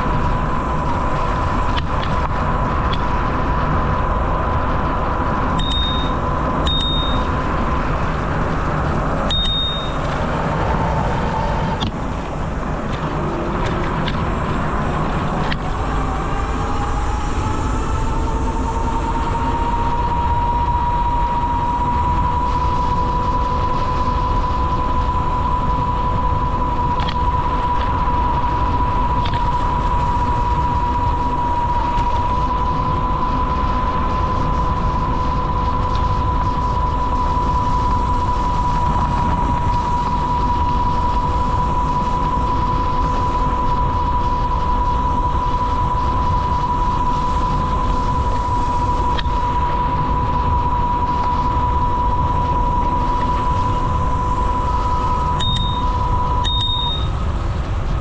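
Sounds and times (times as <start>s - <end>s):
wind and bicycle tyres rushing: 0.0s - 55.4s
high whine: 0.0s - 58.0s
short high pings: 5.6s - 7.4s, 9.3s - 10.0s, 55.4s - 57.2s.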